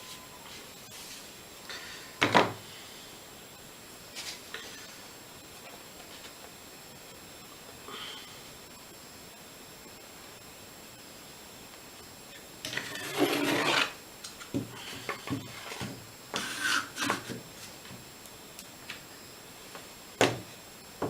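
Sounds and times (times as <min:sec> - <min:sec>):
rubbing scrape: 0:12.8 - 0:14.0, 0:16.4 - 0:17.3.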